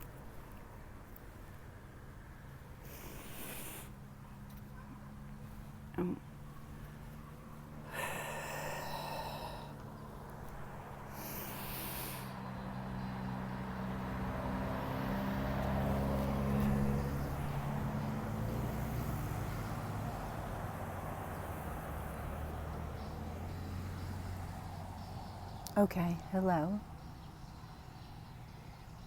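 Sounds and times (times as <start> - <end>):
vehicle engine hum passing: 0.0 - 29.0
short breathy hiss: 2.9 - 3.9.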